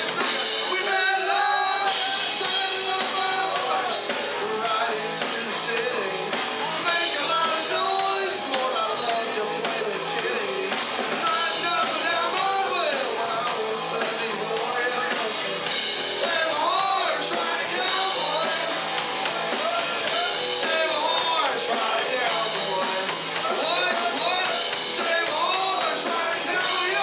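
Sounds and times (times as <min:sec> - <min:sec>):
country rock band playing: 0:00.0 - 0:27.0
drums: 0:00.0 - 0:27.0
electric guitar lead line: 0:00.0 - 0:27.0.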